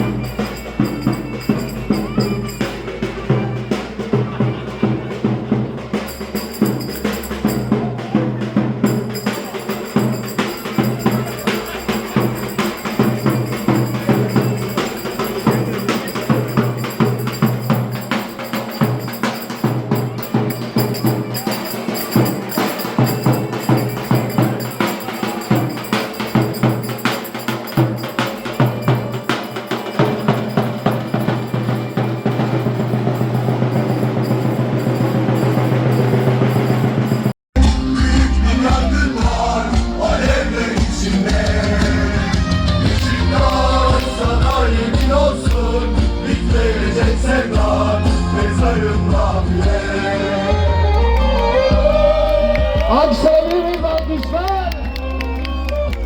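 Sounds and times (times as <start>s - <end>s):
live folk dance music: 0.0s - 33.2s, 37.6s - 56.0s
quick drum beat: 0.0s - 50.1s
held melody tones: 8.8s - 38.0s.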